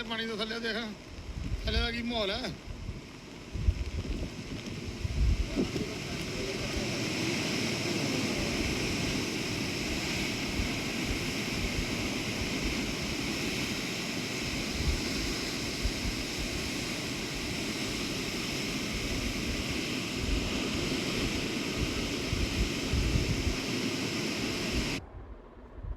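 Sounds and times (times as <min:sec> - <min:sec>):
wind buffeting microphone: 0:01.0 - 0:25.9
floodwater rushing: 0:04.8 - 0:25.0.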